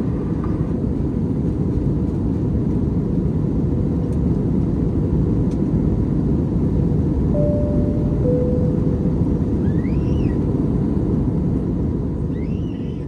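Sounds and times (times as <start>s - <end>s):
airplane engine and airflow rumble: 0.0s - 13.0s
faint steady tone: 7.4s - 9.6s.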